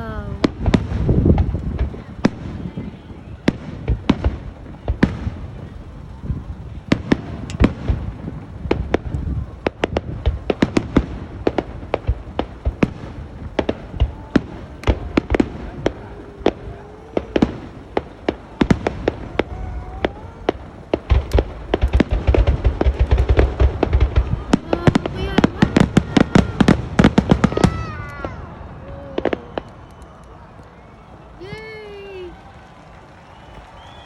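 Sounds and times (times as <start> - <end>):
fireworks cracks and bangs: 0.0 - 34.0.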